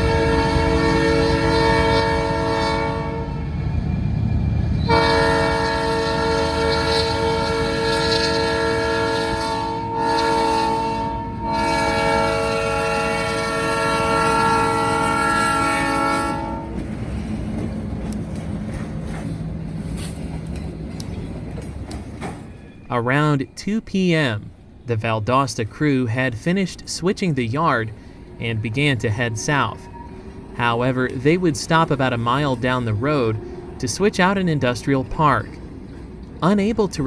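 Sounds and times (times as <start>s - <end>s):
locomotive air horn blasts: 0.0s - 3.6s, 4.8s - 16.8s
train rolling by rumble: 0.0s - 37.0s.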